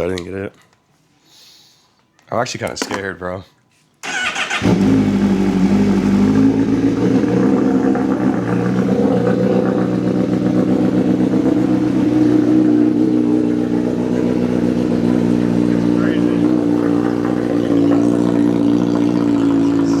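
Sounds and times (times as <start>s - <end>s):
motorcycle engine idling: 4.0s - 20.0s.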